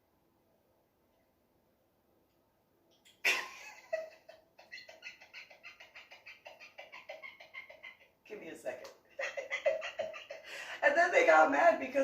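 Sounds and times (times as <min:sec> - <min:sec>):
woman laughing and giggling: 0:03.2 - 0:08.2, 0:09.2 - 0:11.4.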